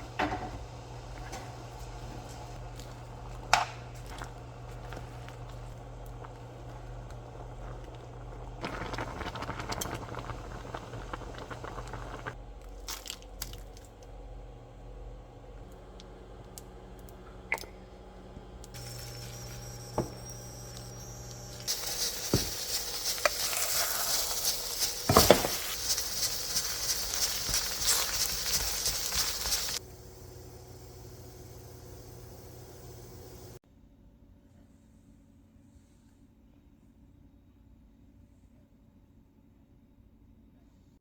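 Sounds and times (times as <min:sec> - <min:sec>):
steady cooking hiss: 0:00.0 - 0:12.4, 0:18.2 - 0:33.6.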